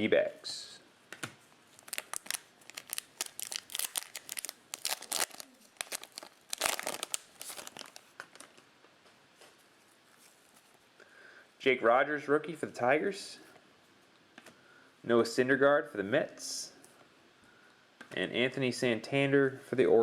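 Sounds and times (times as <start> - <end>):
foil pack tearing and crinkling: 1.8 - 8.5.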